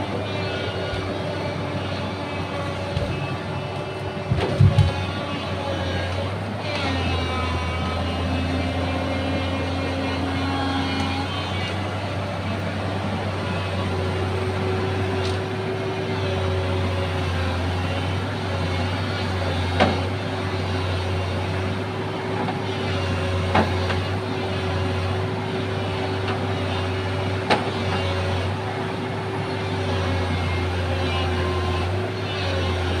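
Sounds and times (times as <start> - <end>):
excavator engine running: 0.0 - 33.0.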